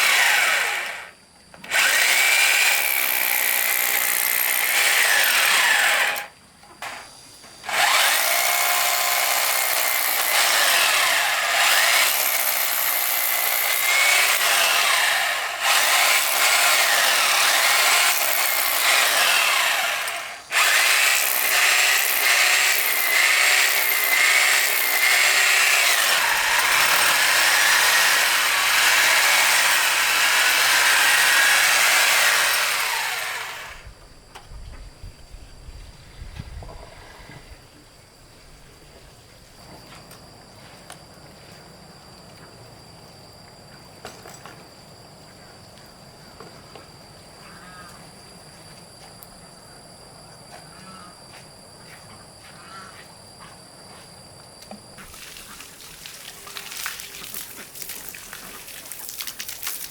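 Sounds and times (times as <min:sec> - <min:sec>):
power tool running: 0:00.0 - 0:07.0, 0:07.6 - 0:33.9.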